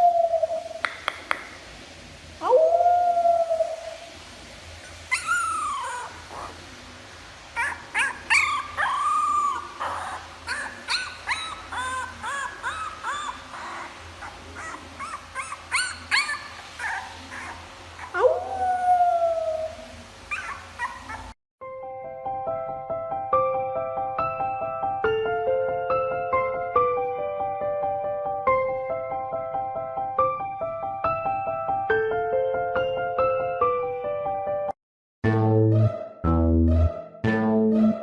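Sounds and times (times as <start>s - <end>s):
dog howling: 2.4s - 4.1s, 5.1s - 6.6s, 7.6s - 21.4s
dog yipping and whining: 4.8s - 6.6s, 7.6s - 21.4s.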